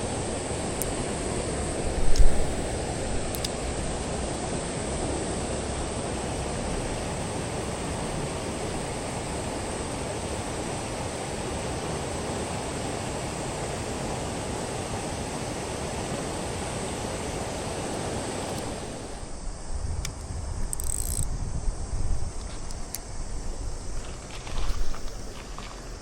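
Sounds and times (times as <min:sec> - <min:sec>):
mountain stream rushing: 0:00.0 - 0:19.3
sharp clicks: 0:02.1 - 0:03.7, 0:20.0 - 0:21.3
wind rumble on microphone: 0:15.6 - 0:26.0.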